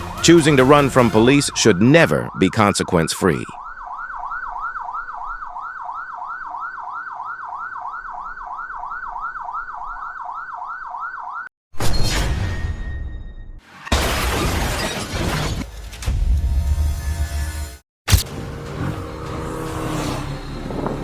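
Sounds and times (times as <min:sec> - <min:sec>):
police siren yelping: 0:00.0 - 0:11.5, 0:18.3 - 0:21.0.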